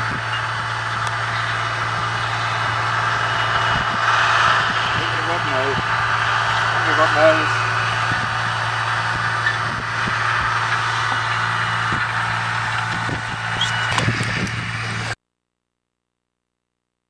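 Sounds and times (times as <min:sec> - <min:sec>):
mechanical engine hum: 0:00.0 - 0:15.2.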